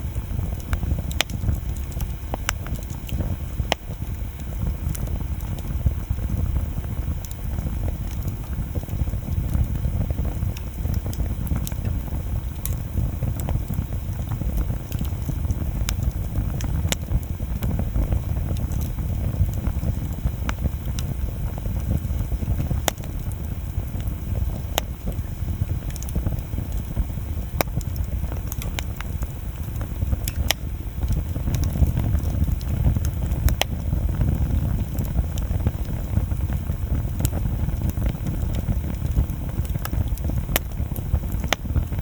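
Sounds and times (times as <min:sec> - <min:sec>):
burning wood crackling and popping: 0:00.0 - 0:42.0
low rush of flame: 0:00.0 - 0:42.0.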